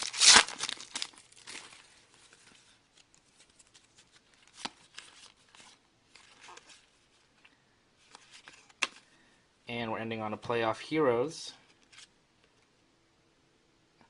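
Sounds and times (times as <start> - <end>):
trading cards rustling: 0.0 - 9.1.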